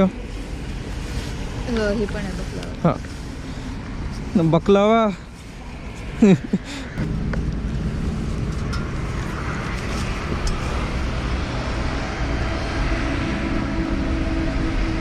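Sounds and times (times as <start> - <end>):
wind and road noise: 0.0 - 15.0
motorcycle engine rumble: 5.2 - 15.0.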